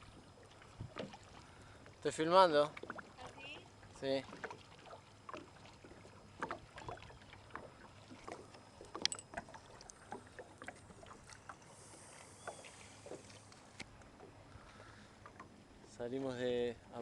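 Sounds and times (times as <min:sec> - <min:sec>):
paddle splashes and drips: 0:00.0 - 0:17.0
hiss of water: 0:11.7 - 0:13.6.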